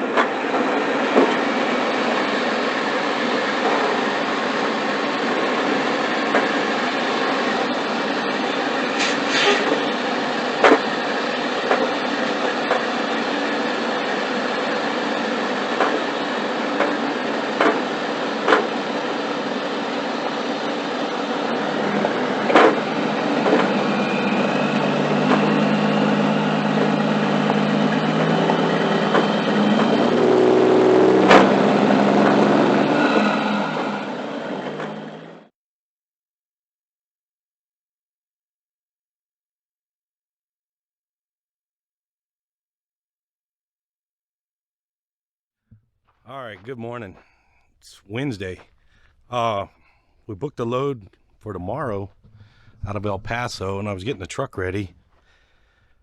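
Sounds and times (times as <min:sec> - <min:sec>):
truck rumbling in motion: 0:00.1 - 0:35.5, 0:46.2 - 0:56.0
low engine hum: 0:19.9 - 0:35.4, 0:47.9 - 0:56.0.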